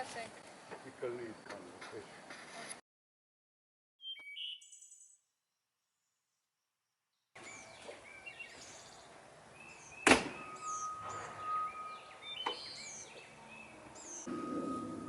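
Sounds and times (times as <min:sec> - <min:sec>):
birds chirping: 0:04.0 - 0:05.2, 0:07.4 - 0:15.0
sharp knock: 0:10.0 - 0:10.4
thin high tone: 0:14.2 - 0:15.0.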